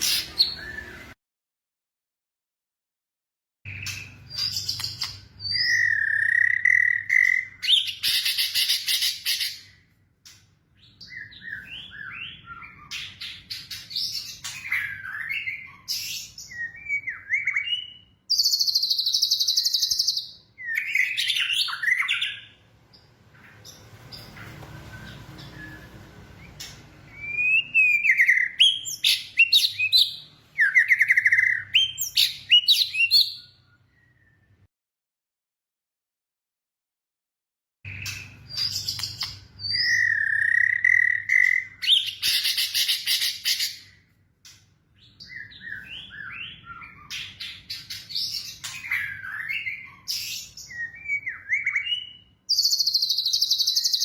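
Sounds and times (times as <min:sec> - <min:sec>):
birds chirping and calling: 0:00.0 - 0:01.2, 0:03.7 - 0:34.6, 0:37.9 - 0:54.0.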